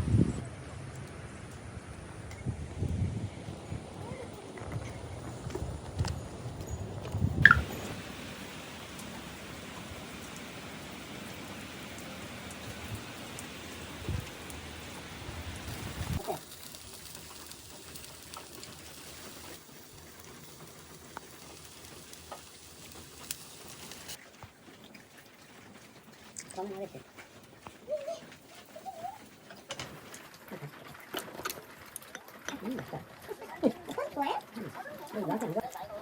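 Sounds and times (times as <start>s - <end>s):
falling water hissing: 7.2s - 24.2s.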